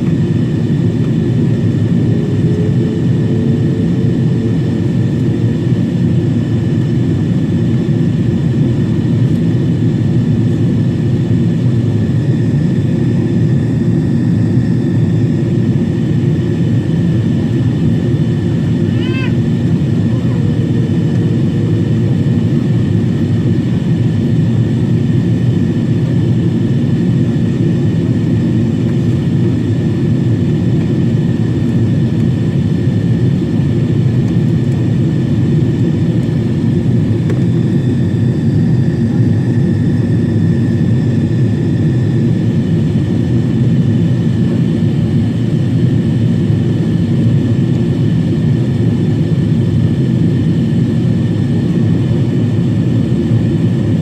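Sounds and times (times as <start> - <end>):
faint steady whine: 0.0 - 32.6
airplane cabin engine drone: 0.0 - 54.0.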